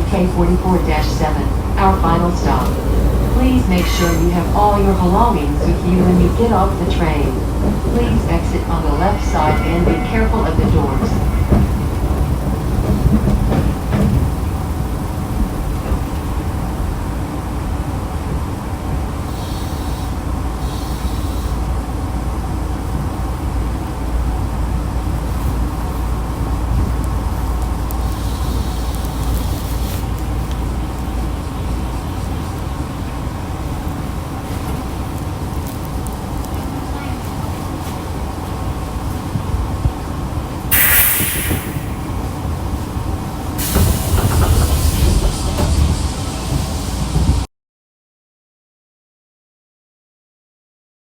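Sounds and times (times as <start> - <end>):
train rumbling on rails: 0.0 - 47.5
brief hissing: 40.7 - 42.3.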